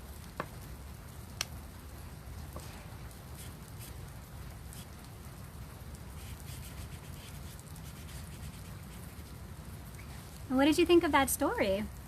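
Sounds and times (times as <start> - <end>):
marker drawing on paper: 3.4 - 4.0, 6.2 - 9.2.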